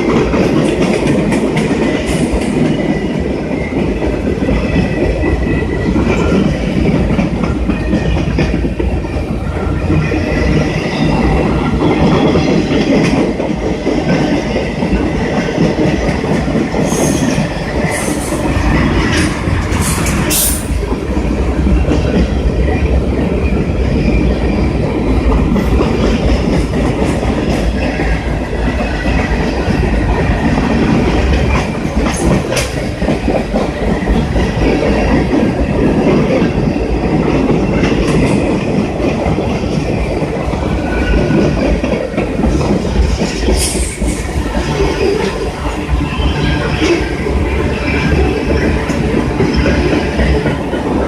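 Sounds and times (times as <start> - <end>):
sharp clicks of train wheels: 0.0 - 51.0
train wheels rumbling on rails: 0.0 - 51.0.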